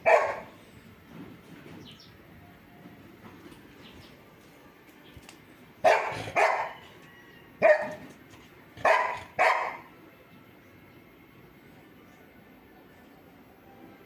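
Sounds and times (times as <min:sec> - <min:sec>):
dog barking: 0:00.0 - 0:00.6, 0:05.8 - 0:06.8, 0:07.6 - 0:08.1, 0:08.8 - 0:09.9.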